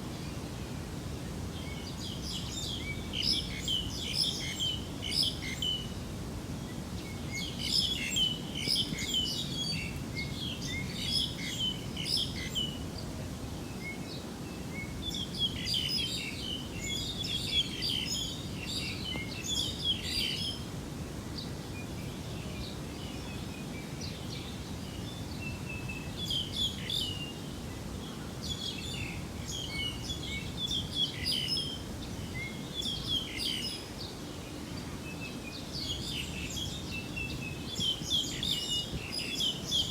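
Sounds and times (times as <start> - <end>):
small birds chirping: 1.6 - 20.7, 21.3 - 39.9.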